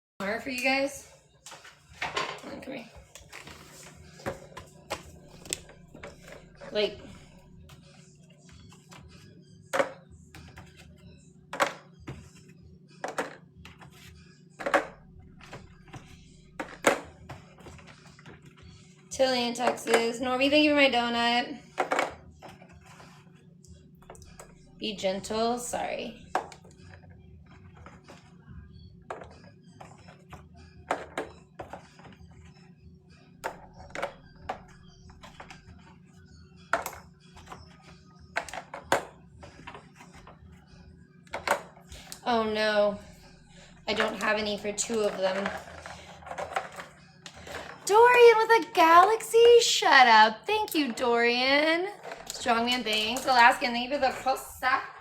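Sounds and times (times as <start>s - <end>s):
steady low hum: 0.6s - 31.6s, 32.2s - 47.8s
food containers clicking and knocking: 1.5s - 7.8s, 9.7s - 10.8s, 11.5s - 12.4s, 13.0s - 18.6s, 29.0s - 32.4s, 33.4s - 36.0s, 36.7s - 40.4s, 41.3s - 42.3s, 43.1s - 48.4s, 51.8s - 54.8s.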